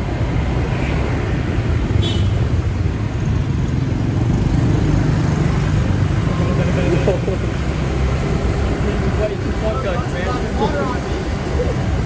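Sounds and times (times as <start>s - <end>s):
road noise: 0.0s - 12.0s
motorcycle engine: 1.6s - 9.6s.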